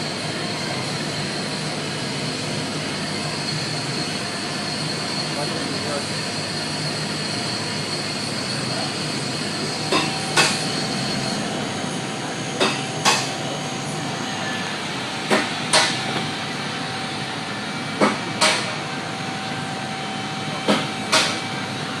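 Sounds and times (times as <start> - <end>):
steady running machine noise: 0.0 - 22.0
sharp mechanical knocks: 9.9 - 10.6, 12.6 - 13.3, 15.3 - 16.0.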